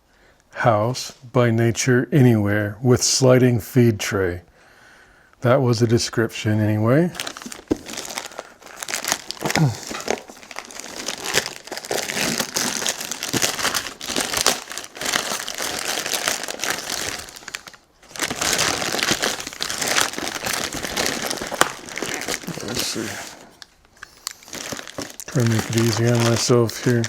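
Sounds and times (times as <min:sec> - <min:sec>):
plastic packaging crinkling: 0:07.0 - 0:27.0.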